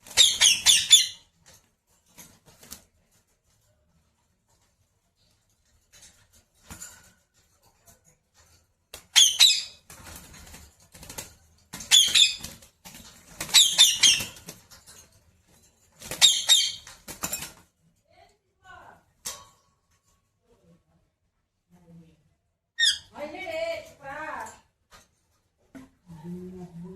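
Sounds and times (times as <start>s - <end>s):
parrot shrill chatter: 0.1s - 1.3s, 9.1s - 9.8s, 11.9s - 12.4s, 13.5s - 14.4s, 16.2s - 16.9s, 22.8s - 23.2s.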